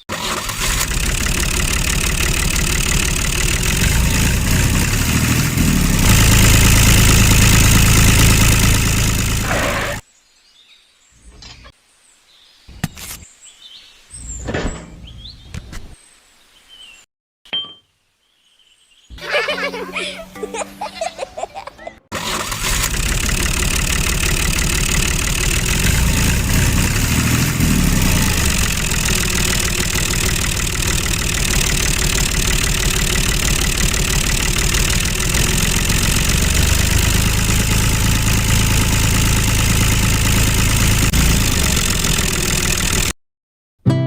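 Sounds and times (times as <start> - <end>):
mini-tractor motor running: 0.0 - 10.0, 22.1 - 43.2.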